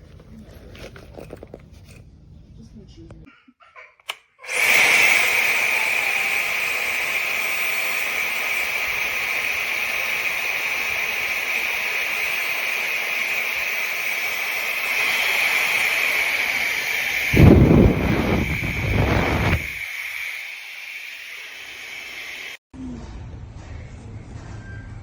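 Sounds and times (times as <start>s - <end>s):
hair dryer running: 4.4s - 22.6s
wind rumble on microphone: 17.3s - 19.8s.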